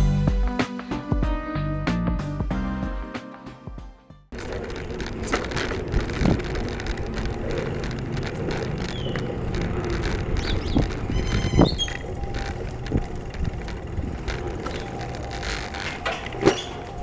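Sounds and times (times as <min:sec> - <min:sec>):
road noise: 0:04.4 - 0:17.0
short squeaks: 0:04.4 - 0:17.0
wind buffeting microphone: 0:04.4 - 0:17.0.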